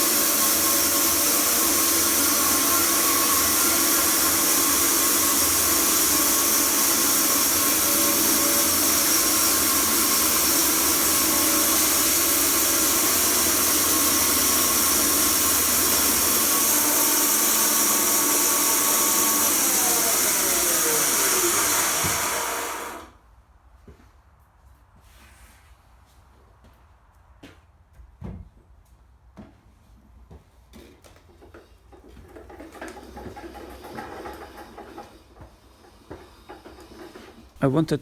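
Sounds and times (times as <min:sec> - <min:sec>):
sawmill milling a log: 0:00.0 - 0:23.2, 0:32.3 - 0:37.9.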